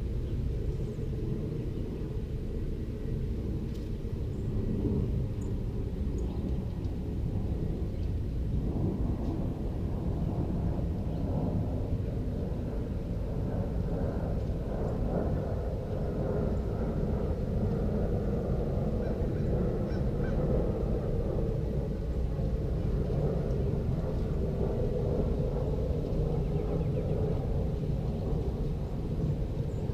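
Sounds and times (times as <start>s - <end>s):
faint bird calls: 19.0s - 20.4s.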